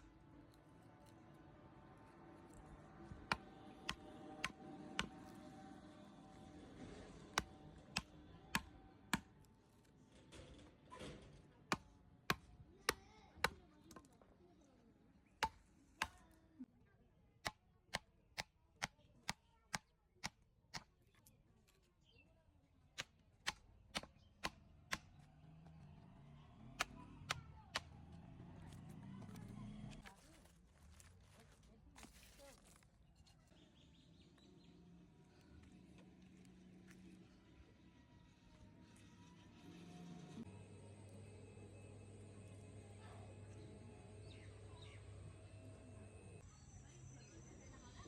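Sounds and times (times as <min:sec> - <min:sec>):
hand tool striking wood: 0:03.3 - 0:05.3, 0:07.3 - 0:09.3, 0:15.4 - 0:16.2, 0:23.0 - 0:25.2.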